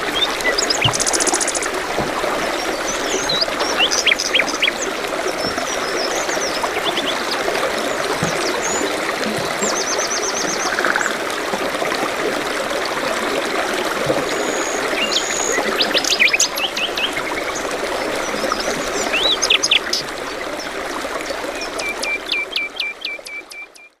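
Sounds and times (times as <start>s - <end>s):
songbirds chirping: 0.0s - 10.5s
stream trickling: 0.0s - 23.9s.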